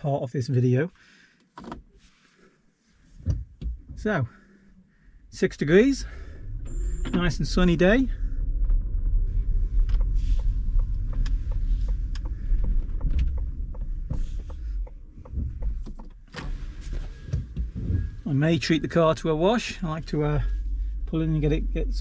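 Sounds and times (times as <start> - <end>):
low steady cabin rumble: 2.6 - 22.0
light clicks and rattles: 5.7 - 18.2.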